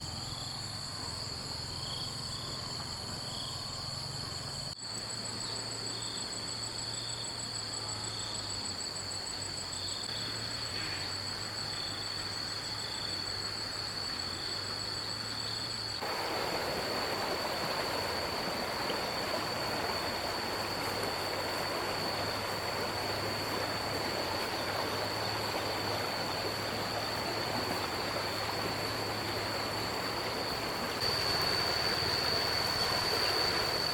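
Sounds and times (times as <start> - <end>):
high-pitched insect trill: 0.0 - 33.9
flowing water: 8.7 - 33.9.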